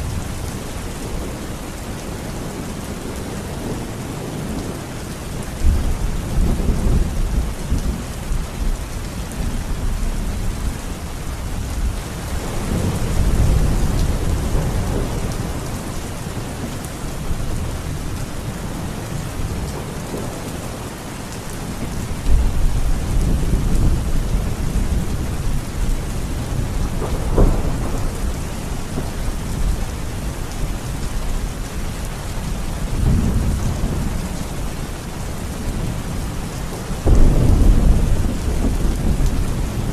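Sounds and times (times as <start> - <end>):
heavy rain falling: 0.0 - 39.9
thunder rolling: 37.0 - 39.9.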